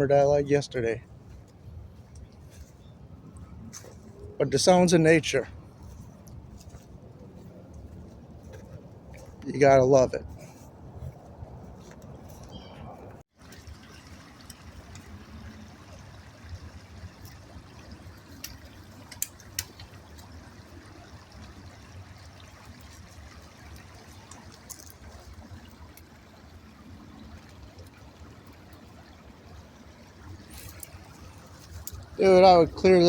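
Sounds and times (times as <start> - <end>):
stream trickling: 0.0 - 33.0.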